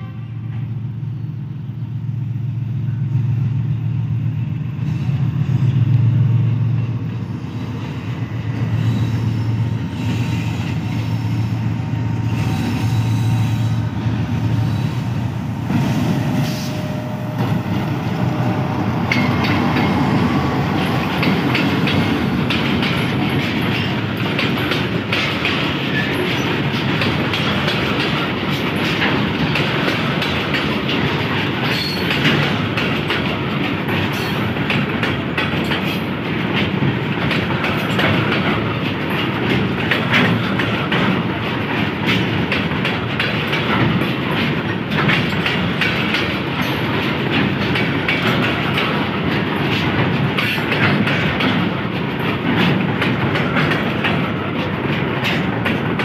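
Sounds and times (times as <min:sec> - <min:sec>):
clattering clicks from wheels: 0:20.7 - 0:56.0.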